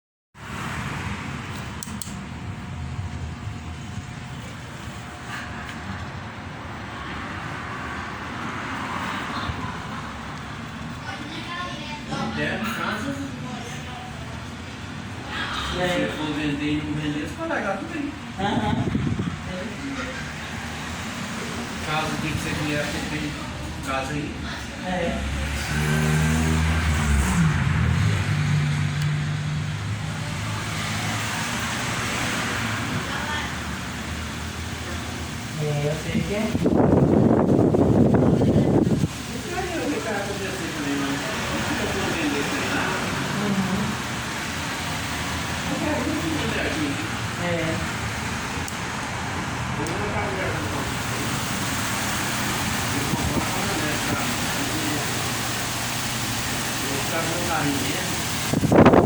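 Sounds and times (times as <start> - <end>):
low motor hum: 0.4 - 12.3
wall fan whooshing: 0.4 - 59.0.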